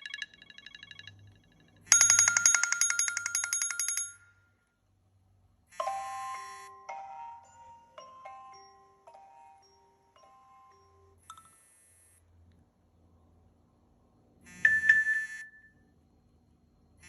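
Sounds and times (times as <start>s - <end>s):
bell-like ringtone trill: 0.0s - 4.3s, 5.8s - 11.3s, 14.7s - 15.7s
chime-like ringtone: 0.0s - 4.5s, 5.8s - 11.6s, 14.6s - 15.8s.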